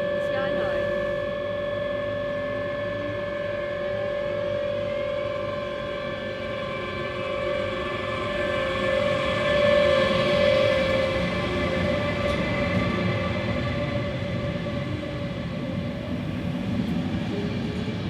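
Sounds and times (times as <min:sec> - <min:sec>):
high-pitched electrical whine: 0:00.0 - 0:16.1
train rumble: 0:05.2 - 0:18.0.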